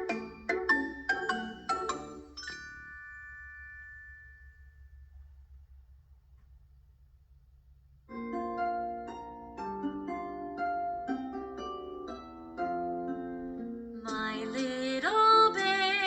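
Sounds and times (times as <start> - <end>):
piano-like keyboard children's song: 0.0 - 4.0, 8.1 - 16.0.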